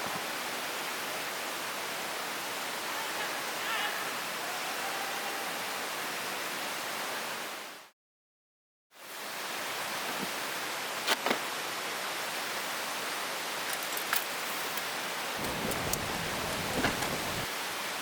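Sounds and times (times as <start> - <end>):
river water flowing: 9.0 - 18.0.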